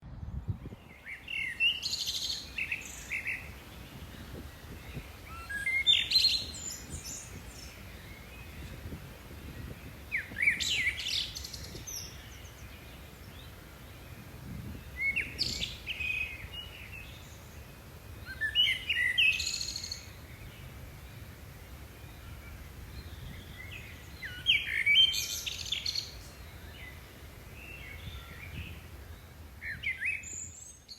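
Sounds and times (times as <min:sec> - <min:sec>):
songbirds singing: 0:00.2 - 0:30.9.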